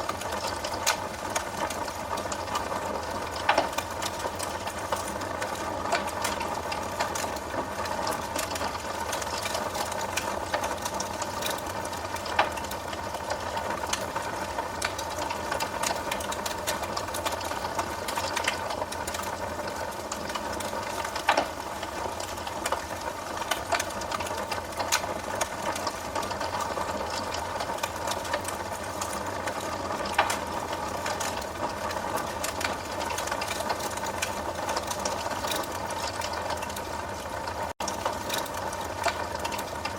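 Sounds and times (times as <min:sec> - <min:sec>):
wood fire crackling: 0:00.0 - 0:39.9
fire pops: 0:03.4 - 0:07.4, 0:20.3 - 0:22.8, 0:27.9 - 0:31.4.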